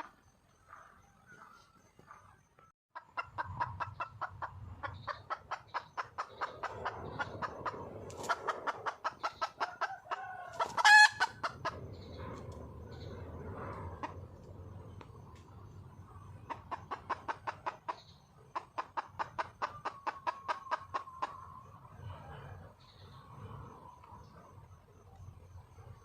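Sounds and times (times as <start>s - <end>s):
hen clucking: 3.0s - 13.1s, 16.4s - 23.2s
hen squawk: 10.5s - 11.8s.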